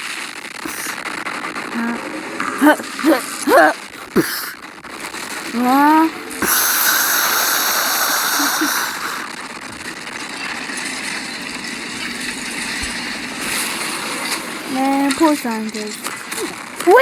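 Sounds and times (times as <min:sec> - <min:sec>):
loud hiss: 0:00.0 - 0:10.3.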